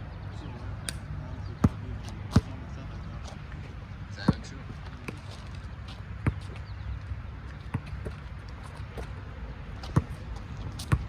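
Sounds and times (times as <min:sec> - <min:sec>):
basketball bouncing on court: 0:01.6 - 0:02.6, 0:06.2 - 0:06.6, 0:07.6 - 0:08.2, 0:09.8 - 0:10.2, 0:10.8 - 0:11.0.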